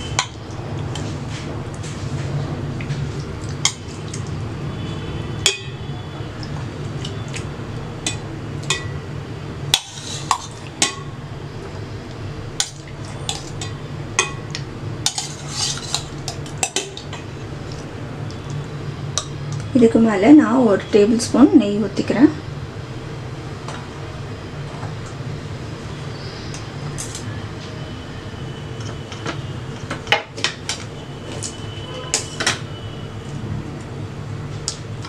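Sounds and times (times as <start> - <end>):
utensil scraping cooking pot: 9.7 - 10.7, 15.0 - 17.2.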